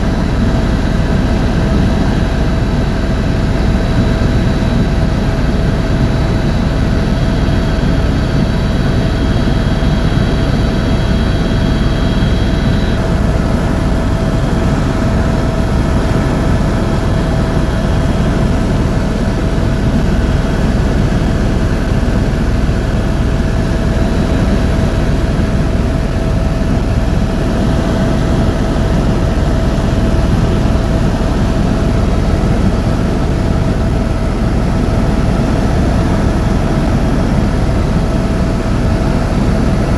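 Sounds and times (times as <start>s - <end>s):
helicopter turbine and rotor drone: 0.0s - 39.9s.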